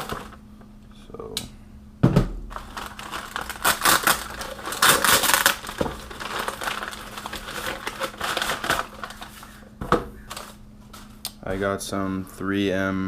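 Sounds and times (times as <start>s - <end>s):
packaging crinkling: 0.0s - 0.4s, 2.5s - 11.2s.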